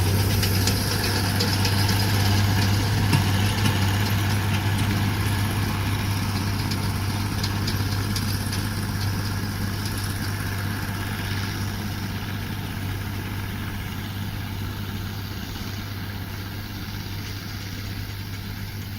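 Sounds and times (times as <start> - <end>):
tractor engine humming: 0.0 - 18.9.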